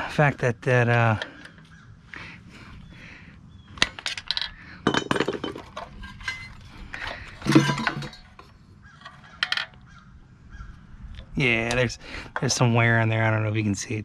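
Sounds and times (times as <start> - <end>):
metal parts clinking and clattering: 3.8 - 9.8.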